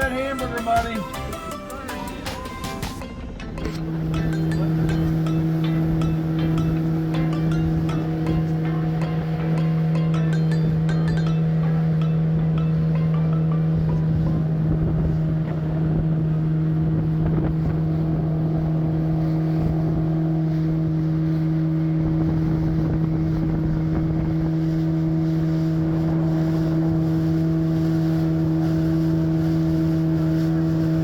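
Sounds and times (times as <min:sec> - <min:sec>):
boat motor humming: 0:00.0 - 0:31.0
wind buffeting microphone: 0:13.6 - 0:31.0.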